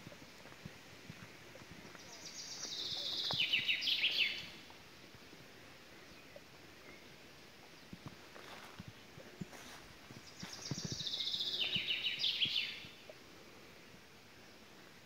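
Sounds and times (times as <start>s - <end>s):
outdoor background noise: 0.0s - 15.0s
songbird singing trill: 1.8s - 4.7s, 5.9s - 13.2s.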